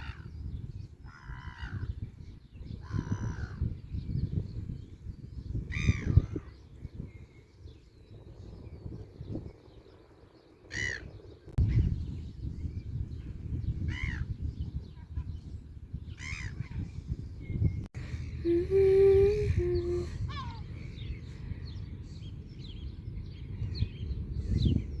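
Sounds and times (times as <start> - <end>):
wind on microphone: 0.0 - 25.0
low hum-like tone: 18.0 - 20.2.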